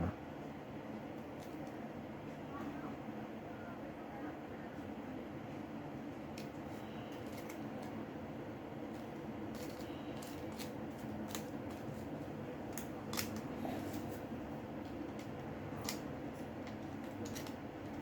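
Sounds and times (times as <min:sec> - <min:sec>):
steady low hum: 0:00.0 - 0:18.0
small tools clicking: 0:09.5 - 0:11.8, 0:16.6 - 0:18.0.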